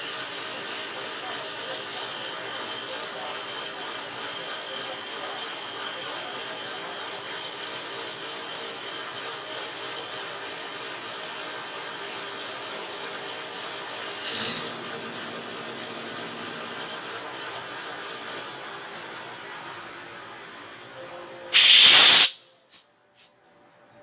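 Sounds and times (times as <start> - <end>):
small machine running: 0.0 - 20.9
loud burst of noise: 13.8 - 19.0.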